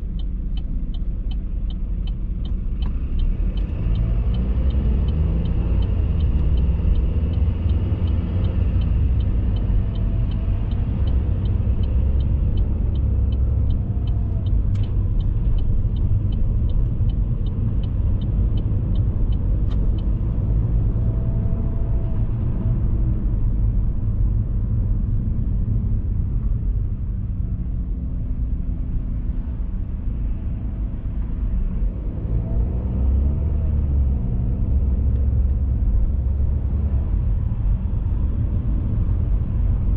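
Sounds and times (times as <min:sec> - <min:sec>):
light regular ticking: 0:00.0 - 0:21.1
car engine and road rumble: 0:00.0 - 0:39.9.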